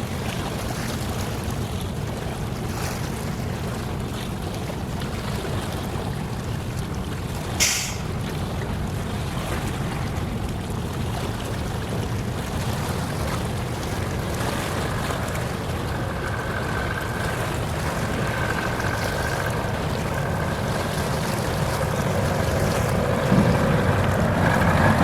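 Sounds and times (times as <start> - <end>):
sea water: 0.0 - 25.0
wind: 0.0 - 25.0.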